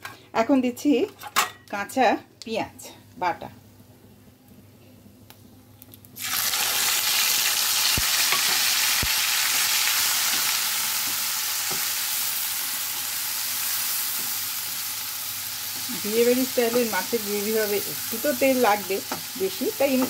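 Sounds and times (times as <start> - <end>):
onion paste sizzling in oil: 6.1 - 20.0.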